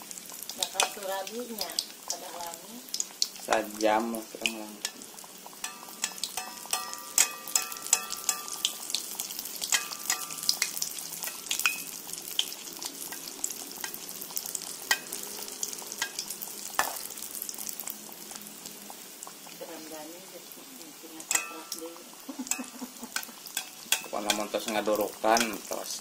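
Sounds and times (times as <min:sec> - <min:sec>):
batter sizzling and crackling in oil: 0:00.0 - 0:26.0
skewer and spoon in wok: 0:04.8 - 0:12.1, 0:13.1 - 0:15.4, 0:16.0 - 0:17.2, 0:21.2 - 0:25.8.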